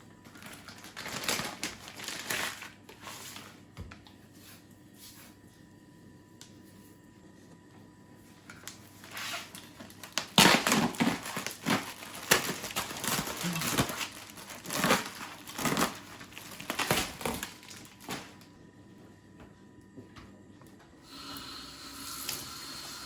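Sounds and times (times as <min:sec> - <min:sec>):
crinkling and crunching handling noises: 0:00.1 - 0:04.6, 0:07.5 - 0:18.6.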